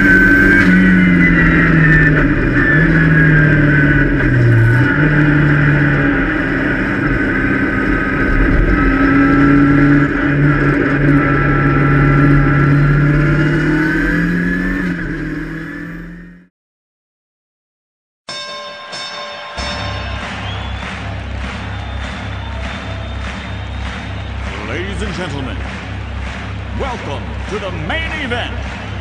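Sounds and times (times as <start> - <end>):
road and wind noise: 0.0 - 16.4
race car engine: 0.0 - 16.5, 19.6 - 29.0.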